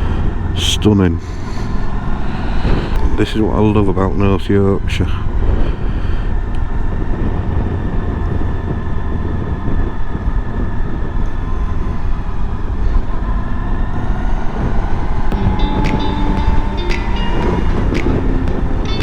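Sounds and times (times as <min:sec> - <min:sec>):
wind rush on microphone: 0:05.2 - 0:19.0
motorcycle engine cruising: 0:13.2 - 0:19.0.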